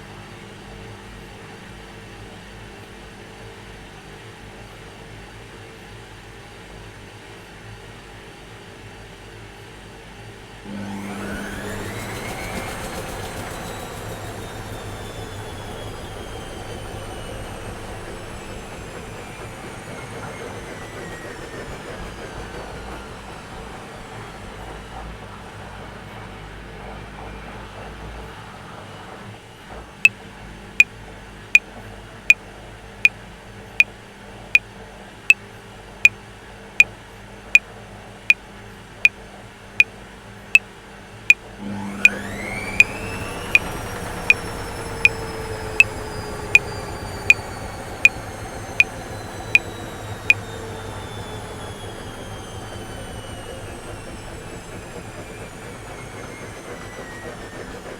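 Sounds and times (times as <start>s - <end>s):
washing machine winding down: 10.6s - 29.2s, 41.6s - 57.9s.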